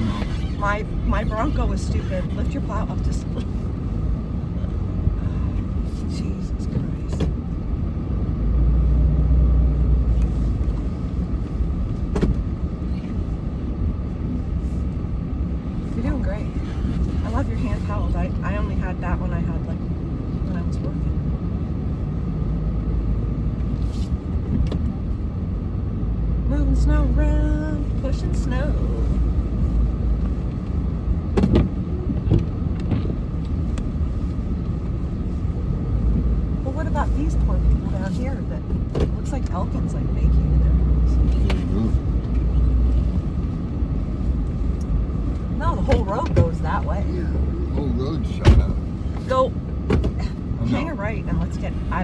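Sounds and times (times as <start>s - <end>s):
knocks and clunks: 31.3s - 33.6s, 47.8s - 50.4s.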